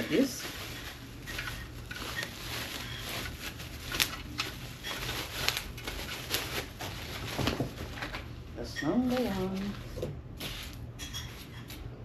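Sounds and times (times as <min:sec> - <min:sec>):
packaging rustling: 0:00.0 - 0:08.3.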